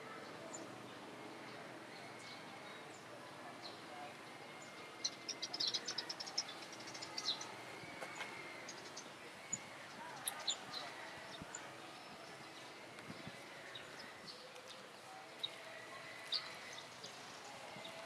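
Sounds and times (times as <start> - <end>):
small birds chirping: 0.3 - 18.0.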